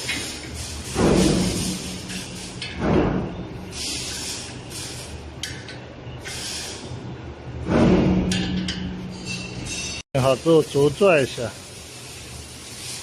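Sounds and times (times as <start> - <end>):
metal clunks: 2.6 - 3.4
tool scraping metal: 7.6 - 10.0.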